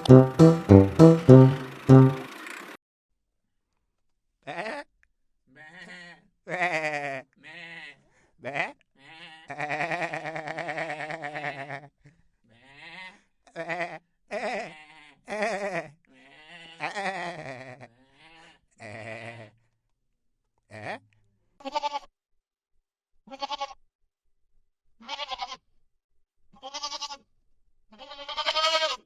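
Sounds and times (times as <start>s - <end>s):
goats bleating: 28.0s - 29.0s.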